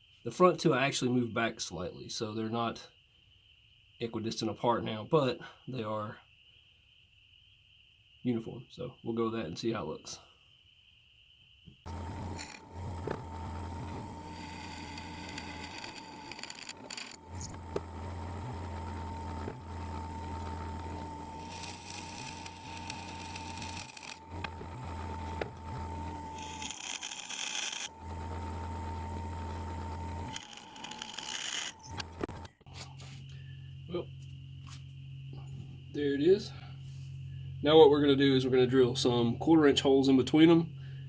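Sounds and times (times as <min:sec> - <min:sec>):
electric drill drilling steel: 0:11.9 - 0:32.5.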